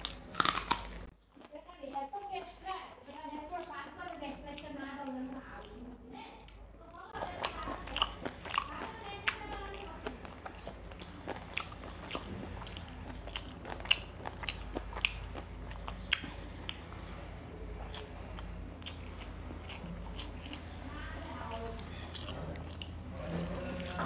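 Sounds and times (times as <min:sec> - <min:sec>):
person chewing: 0:00.0 - 0:24.0
wet lip and mouth clicks: 0:10.0 - 0:17.2.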